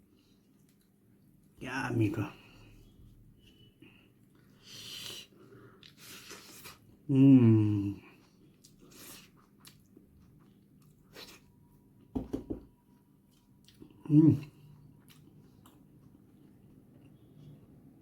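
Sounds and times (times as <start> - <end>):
person humming mmm: 7.1 - 8.1.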